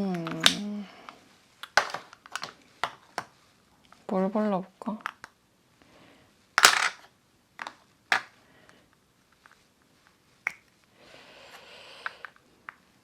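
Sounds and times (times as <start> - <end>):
plastic compacts clicking: 0.1 - 0.6, 1.6 - 3.3, 7.6 - 8.3.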